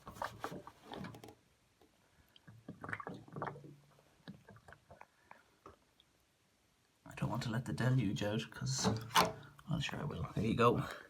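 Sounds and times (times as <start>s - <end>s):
water gurgling down drain: 2.5s - 5.0s.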